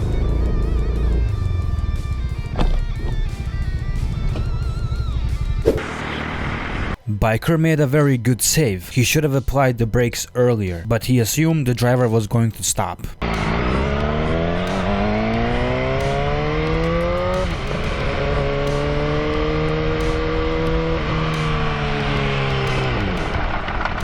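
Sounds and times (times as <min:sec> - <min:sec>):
motorcycle engine revving: 0:00.0 - 0:07.0, 0:13.2 - 0:24.0.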